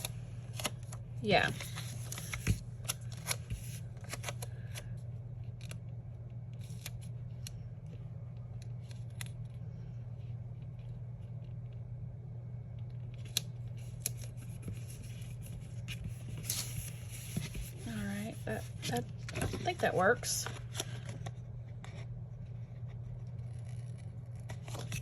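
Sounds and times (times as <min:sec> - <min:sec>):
paper rustling: 0:00.0 - 0:04.4, 0:13.8 - 0:22.0
steady low hum: 0:00.0 - 0:25.0.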